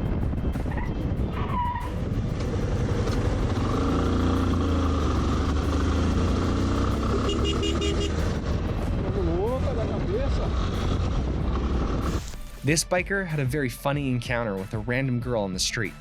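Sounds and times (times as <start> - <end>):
traffic engines and road noise: 0.0 - 12.6.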